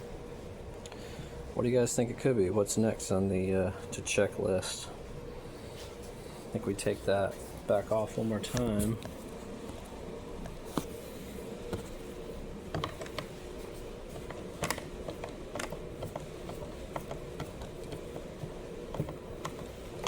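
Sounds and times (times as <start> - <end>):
steady low hum: 0.0 - 20.0
light clicks and knocks of handling: 14.1 - 20.0.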